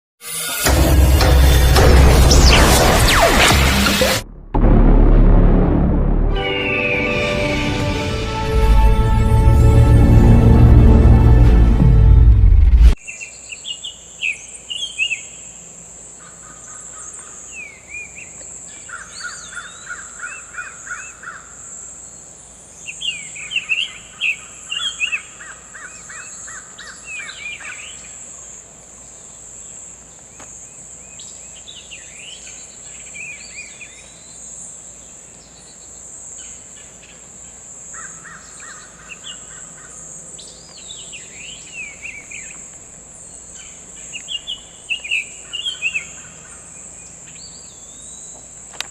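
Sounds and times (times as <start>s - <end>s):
high-pitched insect drone: 0.2s - 2.8s
bird whistling song: 6.4s - 7.5s.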